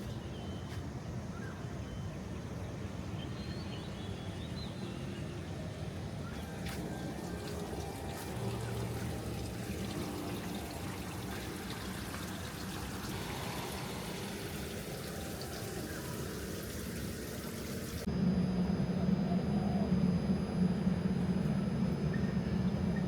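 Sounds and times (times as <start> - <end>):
low hum: 6.0 - 23.0
running water trickling: 6.4 - 18.1.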